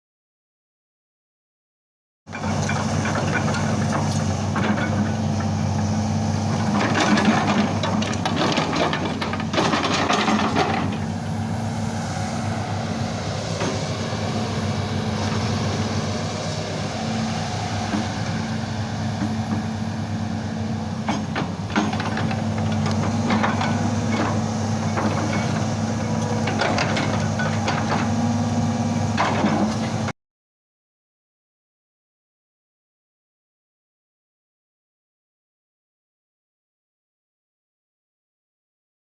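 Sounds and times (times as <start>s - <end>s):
excavator diesel engine: 2.3s - 30.1s.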